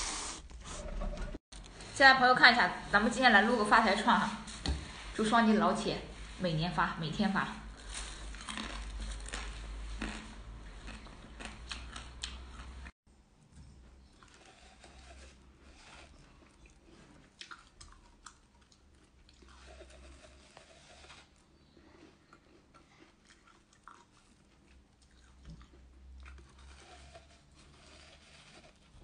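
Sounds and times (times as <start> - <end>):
person chewing soft food: 7.7 - 29.0.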